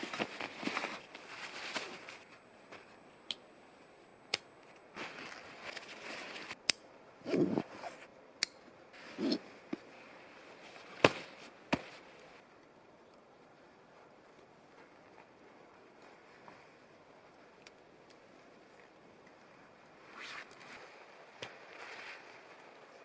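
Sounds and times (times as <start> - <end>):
short rustling: 0.0 - 3.0, 5.0 - 6.6, 9.0 - 12.4.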